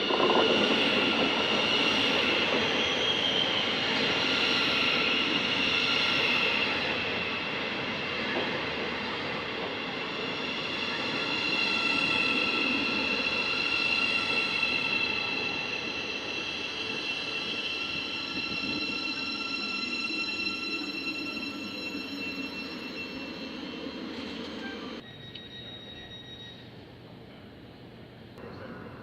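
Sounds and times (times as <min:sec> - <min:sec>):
train rumbling: 0:00.0 - 0:29.0
high-pitched multi-tone whine: 0:09.8 - 0:26.8.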